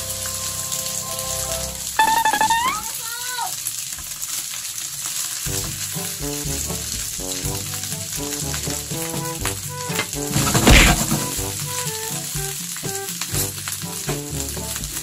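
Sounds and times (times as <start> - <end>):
background music: 0.0 - 2.8, 5.5 - 15.0
rice sizzling in wok: 0.0 - 15.0
sliding pitched tone: 2.0 - 3.0.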